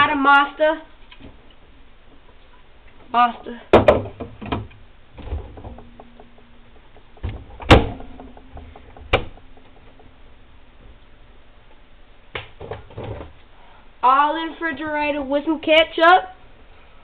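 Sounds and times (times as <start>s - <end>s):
refrigerator door knocks and clicks: 3.8s - 5.9s, 7.2s - 9.4s
loud thump: 7.2s - 9.4s.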